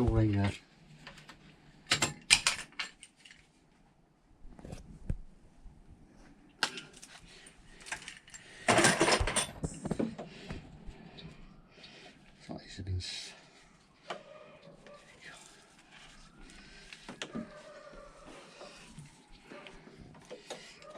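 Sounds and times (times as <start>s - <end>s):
metal tools clinking and clicking: 7.8s - 9.9s.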